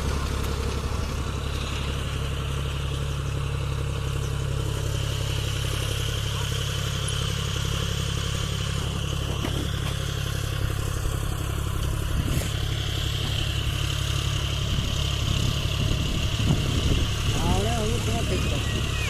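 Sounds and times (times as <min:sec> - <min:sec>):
diesel tractor engine droning: 0:00.0 - 0:19.0
constant high whine: 0:08.8 - 0:19.0.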